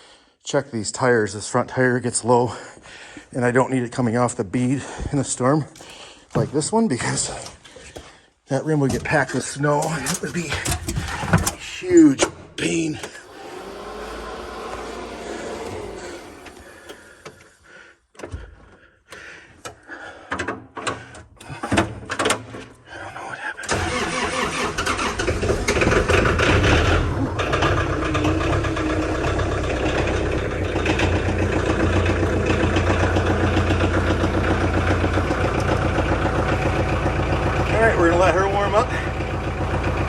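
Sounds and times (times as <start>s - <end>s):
tractor engine starting and idling: 8.8s - 18.6s, 23.6s - 40.0s.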